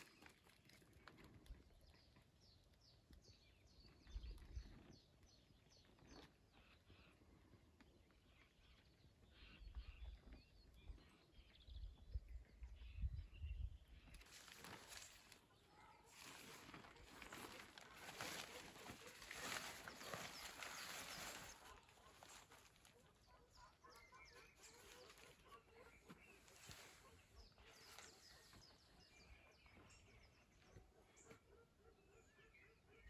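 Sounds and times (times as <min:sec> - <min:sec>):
faint small birds chirping: 0:00.0 - 0:33.0.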